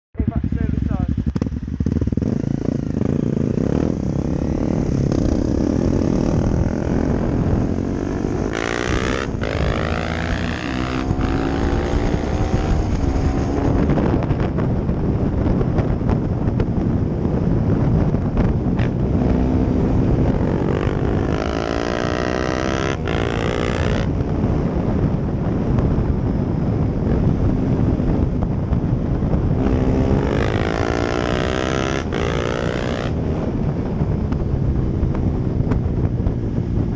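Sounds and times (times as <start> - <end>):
motorcycle revving past: 1.3 - 15.0, 18.7 - 24.8, 29.5 - 33.8.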